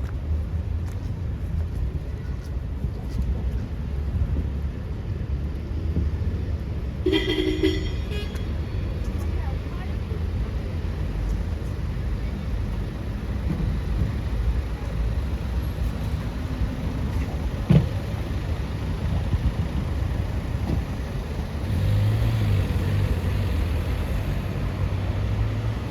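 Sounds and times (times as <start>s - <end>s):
traffic rumble: 0.0s - 25.9s
low engine hum: 8.6s - 25.9s.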